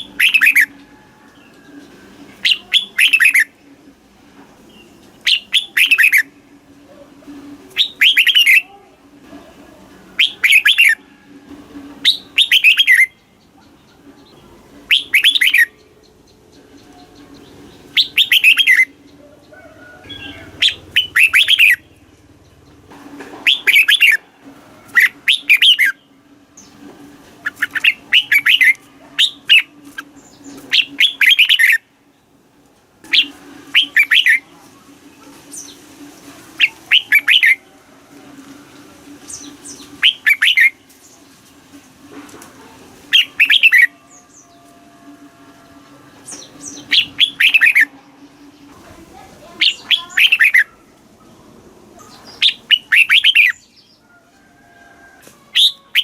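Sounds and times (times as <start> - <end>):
bird singing warbled phrases: 0.0 - 0.8, 2.3 - 3.6, 4.7 - 6.4, 7.7 - 8.7, 10.1 - 11.0, 12.0 - 22.8, 23.4 - 24.2, 24.9 - 26.8, 27.4 - 32.3, 33.0 - 34.5, 36.6 - 37.7, 39.3 - 41.2, 43.1 - 44.7, 46.2 - 51.4, 52.0 - 54.0, 55.5 - 56.0.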